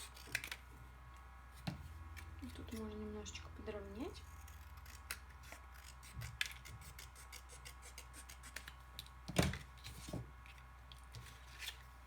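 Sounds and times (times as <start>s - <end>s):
scissors snipping paper: 4.4s - 8.8s.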